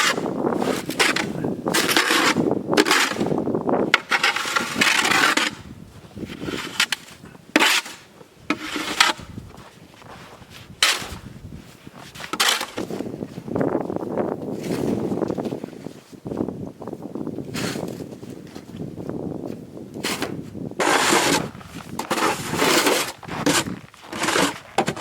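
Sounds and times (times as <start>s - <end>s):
scraping and rubbing strokes: 6.2s - 9.3s, 20.8s - 25.0s.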